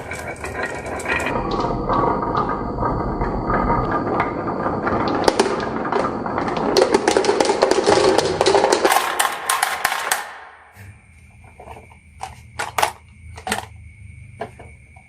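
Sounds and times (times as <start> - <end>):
marbles clattering down a track: 0.0 - 10.7.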